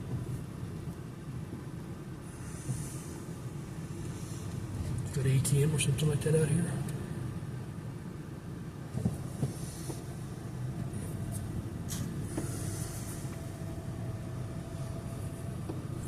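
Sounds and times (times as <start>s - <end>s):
car cabin rumble: 0.0s - 16.0s.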